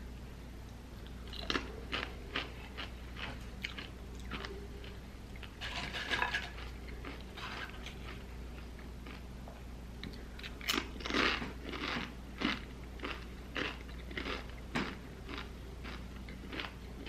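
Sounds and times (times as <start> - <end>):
chip crunching while chewed: 1.0 - 9.3, 10.0 - 17.0.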